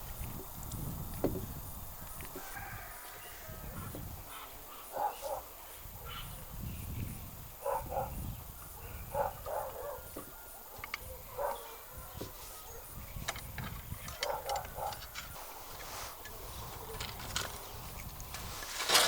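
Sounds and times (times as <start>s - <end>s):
dog barking: 4.3s - 6.4s, 7.6s - 8.2s, 8.8s - 13.0s, 14.2s - 15.0s.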